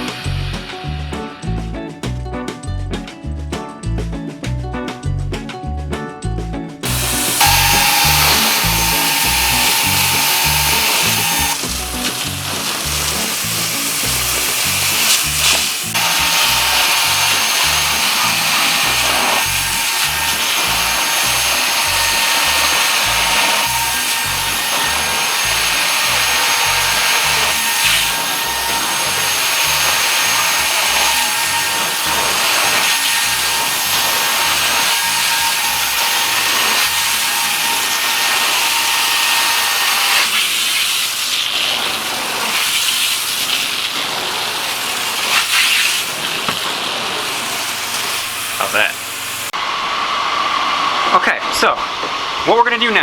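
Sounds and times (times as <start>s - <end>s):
thin whine: 0.0s - 1.6s, 6.8s - 40.4s
background music with bass beat: 0.0s - 7.2s
carpet extraction vacuum hiss: 6.9s - 53.0s.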